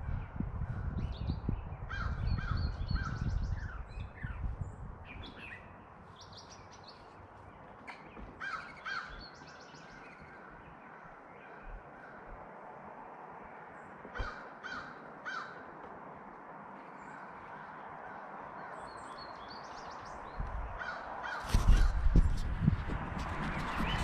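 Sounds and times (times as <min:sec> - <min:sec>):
harsh bird calls: 0:01.0 - 0:12.5, 0:13.2 - 0:15.8, 0:16.8 - 0:22.4, 0:23.0 - 0:24.0
loud low rumble with knocks: 0:21.6 - 0:24.0.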